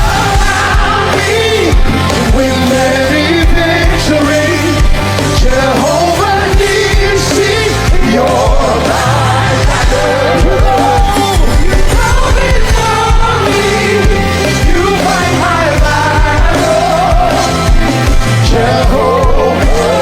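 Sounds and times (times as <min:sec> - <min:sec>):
gospel band playing: 0:00.0 - 0:20.0
person singing: 0:00.0 - 0:20.0.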